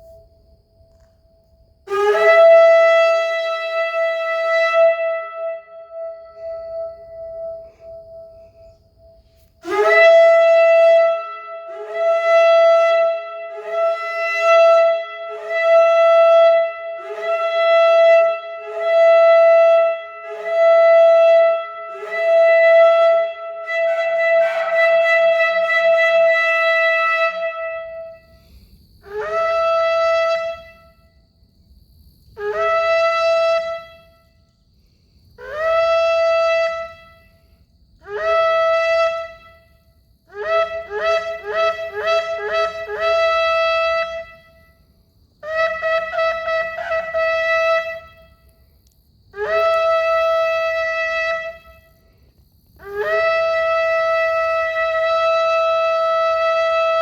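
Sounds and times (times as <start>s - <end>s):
shofar blasts: 1.8s - 31.2s, 32.4s - 34.4s, 35.4s - 44.8s, 45.4s - 48.5s, 49.3s - 52.1s, 52.8s - 57.0s.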